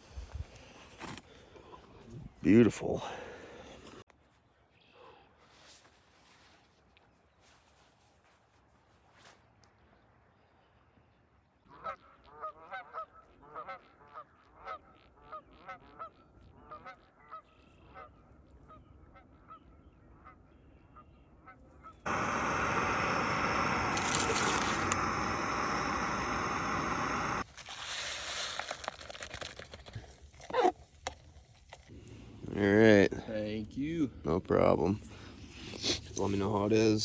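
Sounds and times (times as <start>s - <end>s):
loud steady rushing noise: 22.1s - 27.4s.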